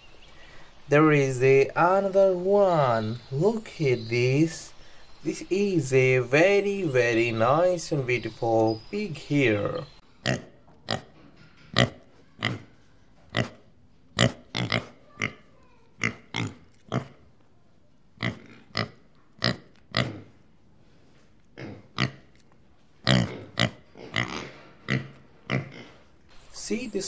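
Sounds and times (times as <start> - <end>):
piglets grunting: 11.8 - 17.2, 18.2 - 20.4, 23.0 - 26.1.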